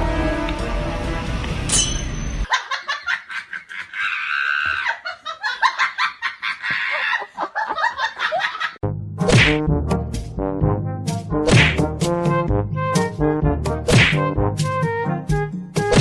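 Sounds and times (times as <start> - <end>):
background music: 0.0 - 2.4, 8.8 - 16.0
laughter bursts: 2.5 - 8.8.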